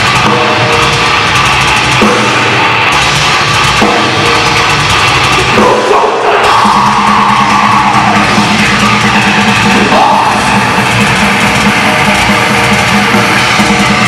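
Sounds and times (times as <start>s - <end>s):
crashing cymbals: 0.0s - 14.0s
distorted guitars: 0.0s - 14.0s
double bass drum: 0.0s - 14.0s
heavy metal band playing: 0.0s - 14.0s.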